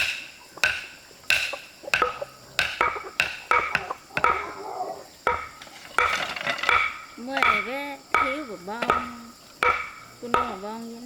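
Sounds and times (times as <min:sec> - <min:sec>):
sharp ringing knocks: 0:00.0 - 0:04.6, 0:05.2 - 0:11.0.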